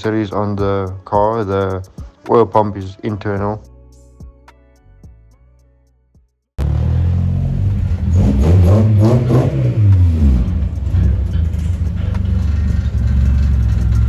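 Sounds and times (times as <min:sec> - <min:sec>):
car engine revving and idling: 0:06.6 - 0:14.0.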